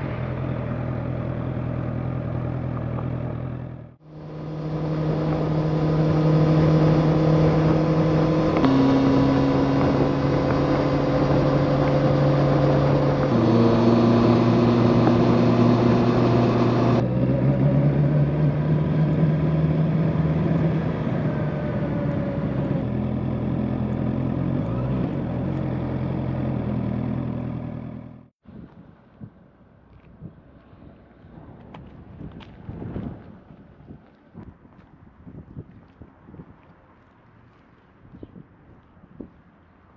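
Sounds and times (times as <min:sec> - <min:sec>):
motorcycle engine cruising: 0:00.0 - 0:28.3
rushing wind: 0:04.1 - 0:17.0, 0:30.2 - 0:36.7.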